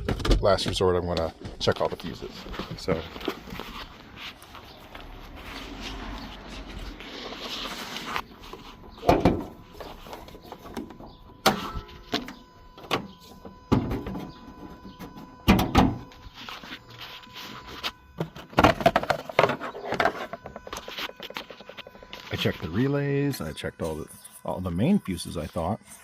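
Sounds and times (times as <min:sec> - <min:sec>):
plastic knocks clicks and scrapes: 0:18.2 - 0:22.2.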